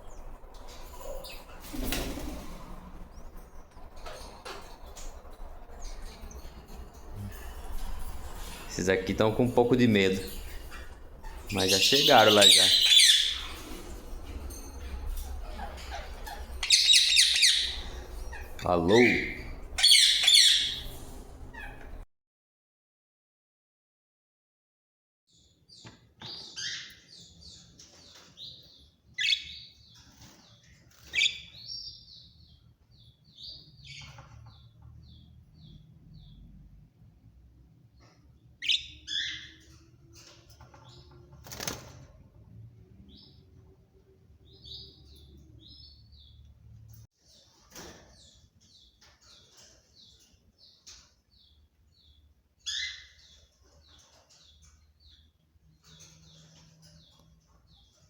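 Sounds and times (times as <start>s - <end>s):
parakeets chirping: 0.0s - 22.0s, 31.0s - 32.0s, 38.6s - 39.6s, 51.4s - 55.2s
sharp loud parakeet calls: 10.4s - 13.7s, 15.5s - 22.0s.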